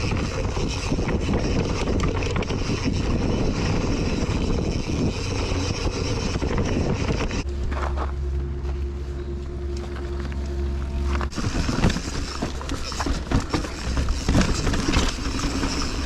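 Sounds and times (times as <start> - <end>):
wind on microphone: 0.0 - 8.0
bike rattling over ground: 0.0 - 8.8, 9.7 - 16.0
bike tyre roar on dirt: 0.0 - 16.0
low hum: 0.0 - 16.0.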